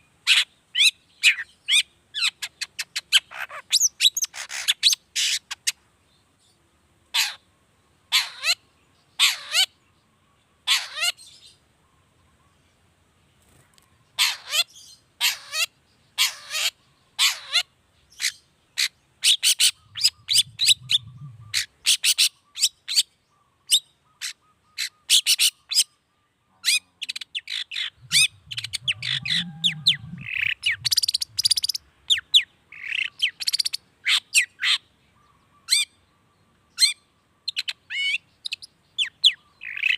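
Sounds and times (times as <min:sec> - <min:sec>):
bird singing harsh notes: 0:19.2 - 0:23.0, 0:26.6 - 0:34.8.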